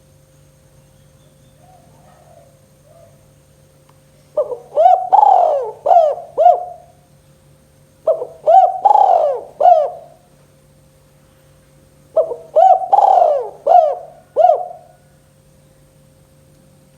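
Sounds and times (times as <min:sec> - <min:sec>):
dove cooing: 0:01.6 - 0:03.2, 0:04.4 - 0:07.0, 0:08.0 - 0:10.3, 0:12.1 - 0:15.2.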